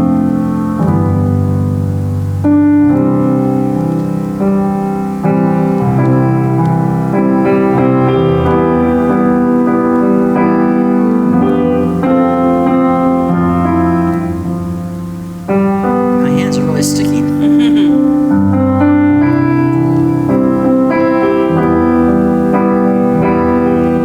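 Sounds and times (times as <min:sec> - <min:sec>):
solo piano chords: 0:00.0 - 0:24.0.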